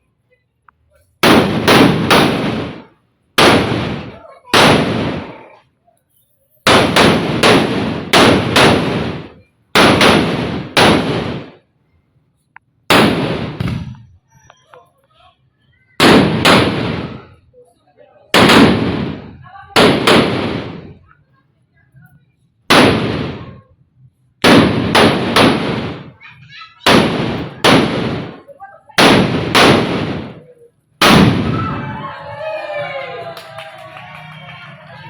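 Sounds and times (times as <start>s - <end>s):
firecrackers banging: 1.2s - 5.6s, 6.6s - 11.7s, 12.9s - 14.4s, 16.0s - 17.5s, 18.3s - 21.1s, 22.7s - 23.7s, 24.4s - 32.1s.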